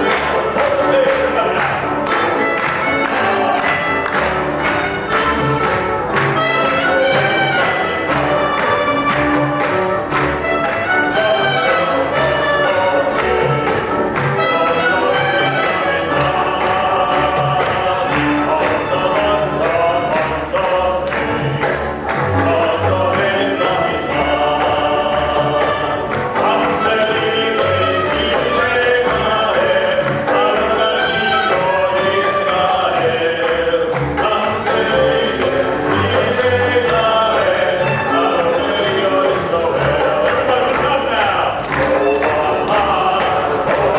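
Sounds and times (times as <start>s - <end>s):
group of voices singing: 0.0s - 43.9s
instrumental accompaniment: 0.0s - 43.9s.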